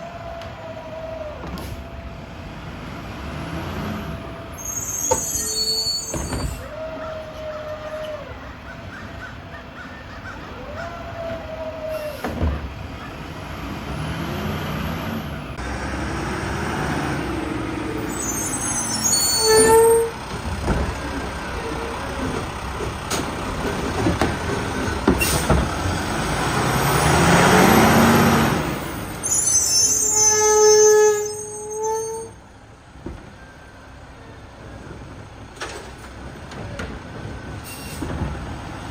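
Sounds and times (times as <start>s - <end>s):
diesel engine running: 12.2s - 18.6s, 19.6s - 29.2s.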